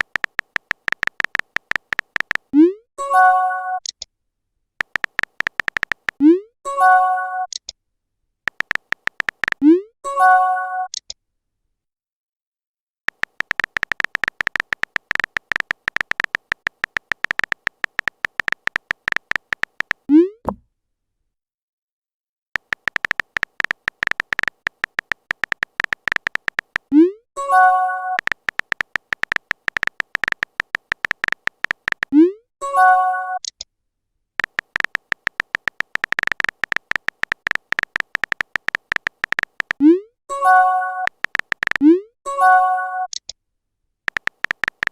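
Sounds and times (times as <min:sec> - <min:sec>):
high electronic typing beeps: 0:00.0 - 0:03.6, 0:04.8 - 0:06.5, 0:08.5 - 0:09.8, 0:13.1 - 0:20.4, 0:22.6 - 0:33.6, 0:34.4 - 0:43.2, 0:44.1 - 0:44.9.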